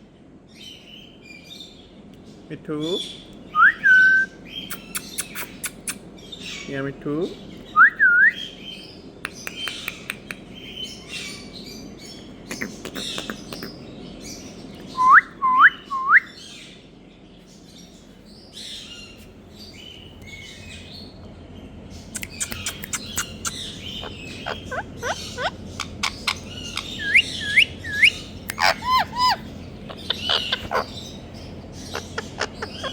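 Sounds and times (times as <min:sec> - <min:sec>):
parakeet chirping: 0:21.7 - 0:32.9
loud rising whistled calls: 0:22.2 - 0:31.2.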